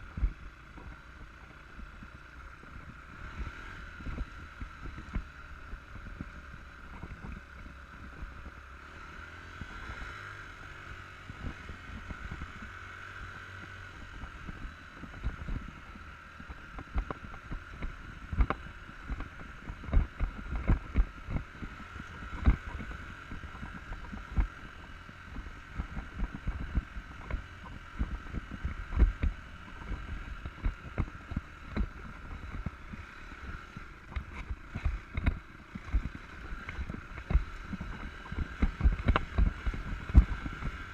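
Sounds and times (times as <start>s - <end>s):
motorcycle engine hum: 0.0s - 40.9s
knocks and thumps from bumps: 34.0s - 40.7s.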